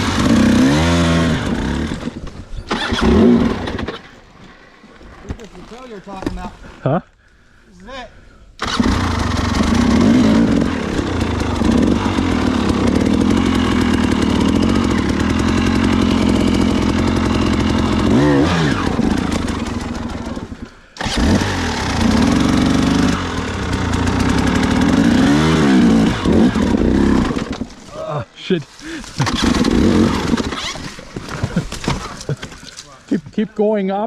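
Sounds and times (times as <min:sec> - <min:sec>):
dirt bike engine under load: 0:08.6 - 0:28.0, 0:28.8 - 0:33.4.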